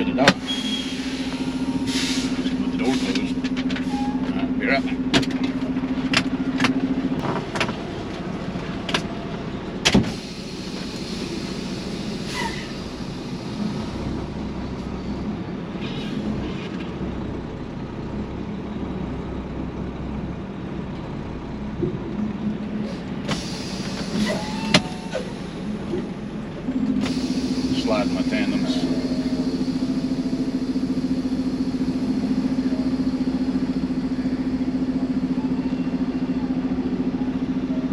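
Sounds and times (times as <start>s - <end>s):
truck diesel engine idling: 0.0s - 37.9s.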